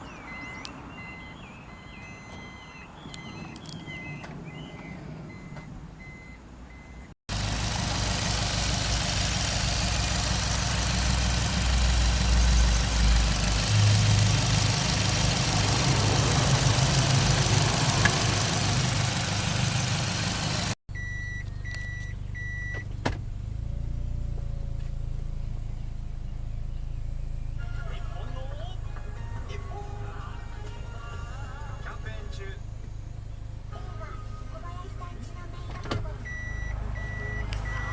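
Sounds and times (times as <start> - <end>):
car engine running: 0.2 - 37.9.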